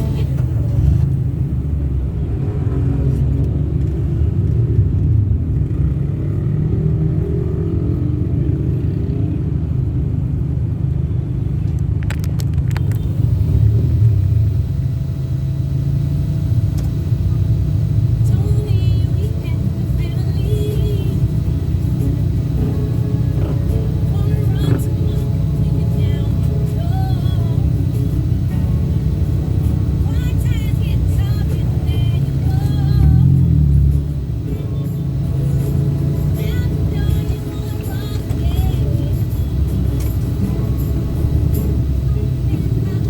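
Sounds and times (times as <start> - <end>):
car road and engine rumble: 0.0 - 43.0
sharp clicks: 11.7 - 13.2.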